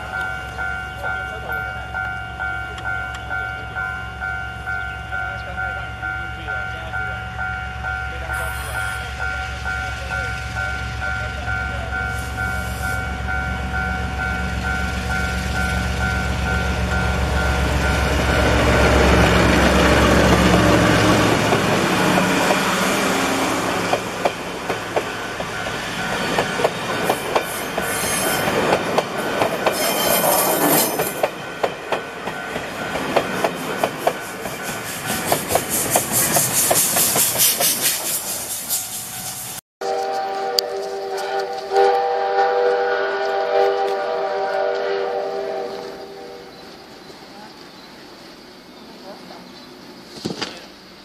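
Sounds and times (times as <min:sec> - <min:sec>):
diesel locomotive engine running: 0:00.0 - 0:29.8
train wheels clattering over rail joints: 0:23.8 - 0:38.8
wheel squeal: 0:27.5 - 0:28.5, 0:29.7 - 0:31.1.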